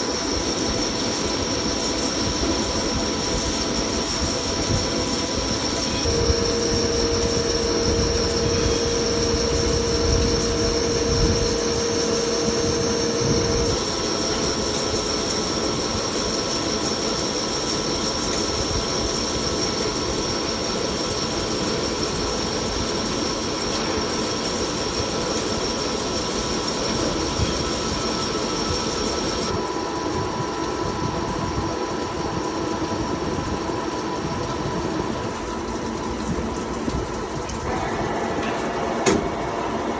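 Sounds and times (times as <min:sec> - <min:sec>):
lathe machine whine: 0:00.0 - 0:39.9
mid-pitched whine: 0:05.4 - 0:13.9.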